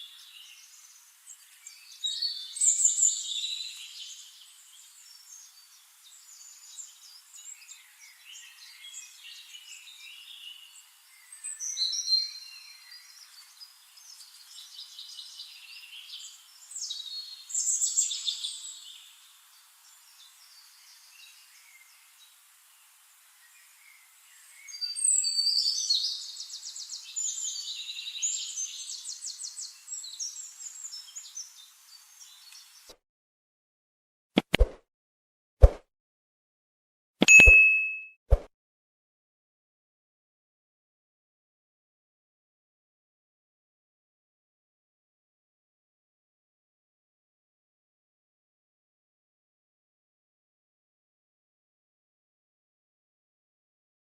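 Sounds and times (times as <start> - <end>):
quiet bird chirps: 0.0 - 22.4, 23.3 - 32.9
forest birds singing: 0.0 - 32.9.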